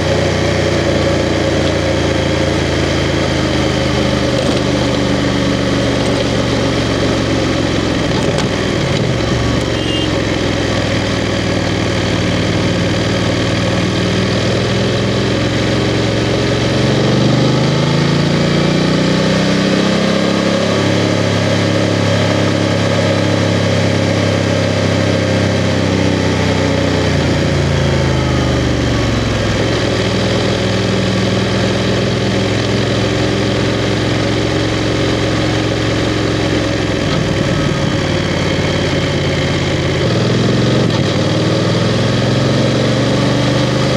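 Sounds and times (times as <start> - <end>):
wind and road noise: 0.0 - 12.3
motorcycle engine running: 0.0 - 43.9.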